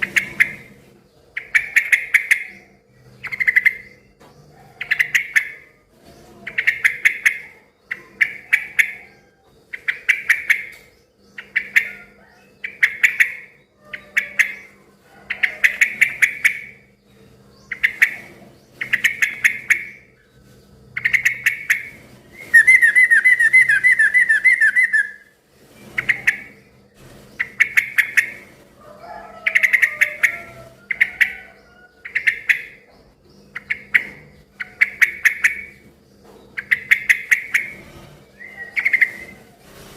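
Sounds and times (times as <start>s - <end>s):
bird chattering trill: 0.0s - 0.7s, 1.3s - 4.1s, 4.8s - 5.7s, 6.4s - 16.9s, 17.6s - 20.3s, 20.9s - 25.3s, 27.4s - 28.5s, 29.4s - 35.8s, 36.5s - 39.4s
bird calling bubbly phrases: 22.5s - 25.2s.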